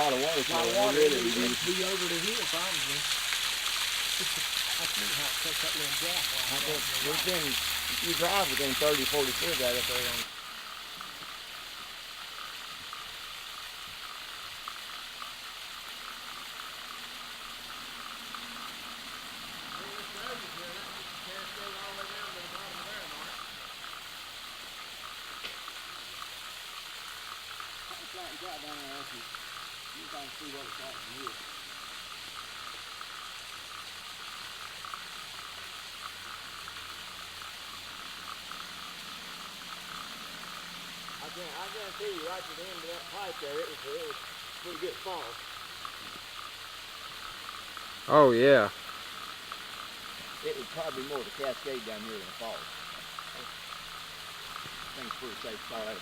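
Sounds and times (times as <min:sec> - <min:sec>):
waterfall rushing: 0:00.0 - 0:10.3
small water splashes: 0:00.0 - 0:12.3
small splashy ticks: 0:00.2 - 0:48.1, 0:48.7 - 0:56.0.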